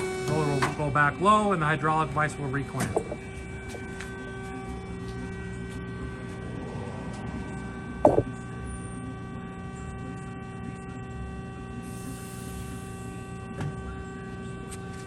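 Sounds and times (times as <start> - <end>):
hydraulic unit humming: 0.0 - 4.0, 8.0 - 8.5.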